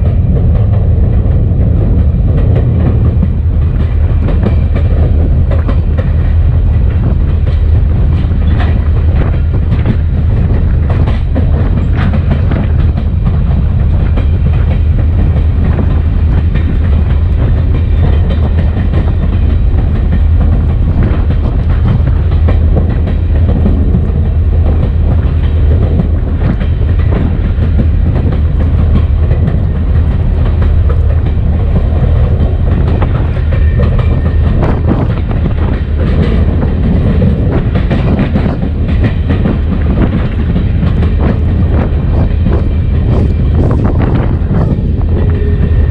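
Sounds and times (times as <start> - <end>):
diesel locomotive rumble: 0.0 - 45.9.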